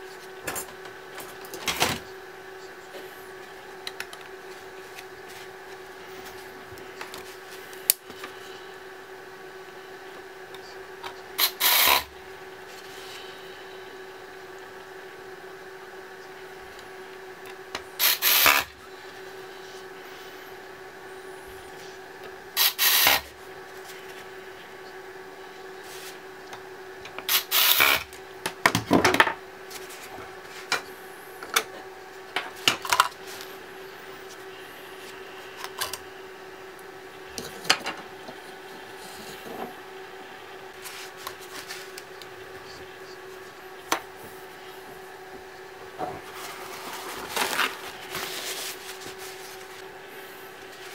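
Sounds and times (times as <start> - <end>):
steady hum: 0.0 - 50.9
scraping and rubbing on laptop parts: 40.8 - 42.0, 46.2 - 49.8.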